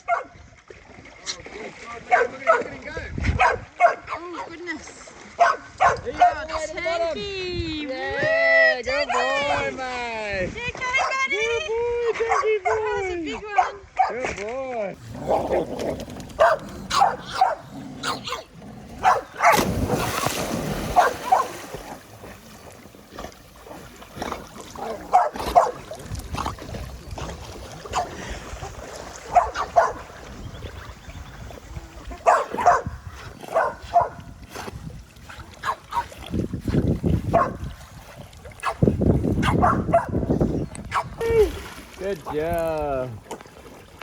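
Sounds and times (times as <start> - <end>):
dogs barking and yipping: 0.0 - 0.3, 3.4 - 4.2, 5.4 - 6.4, 15.2 - 21.7, 24.8 - 25.8, 27.9 - 28.1, 29.3 - 30.1, 32.2 - 34.2, 35.6 - 36.1, 37.3 - 37.6, 38.6 - 40.3, 40.9 - 41.1
water splash: 15.0 - 30.8, 41.2 - 44.0.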